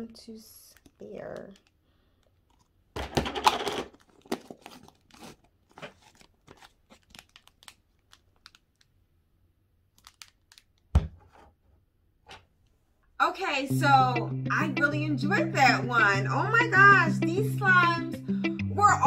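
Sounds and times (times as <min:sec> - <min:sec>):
small crackles and clicks: 0:00.6 - 0:02.7, 0:06.9 - 0:08.9, 0:09.9 - 0:10.9
plastic packaging crinkling: 0:00.7 - 0:09.0, 0:09.9 - 0:10.9
thump: 0:10.9 - 0:11.2.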